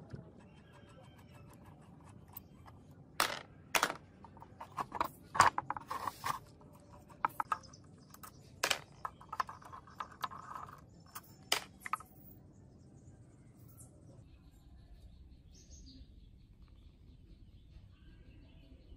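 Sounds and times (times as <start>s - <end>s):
metal scrape: 4.5s - 7.6s.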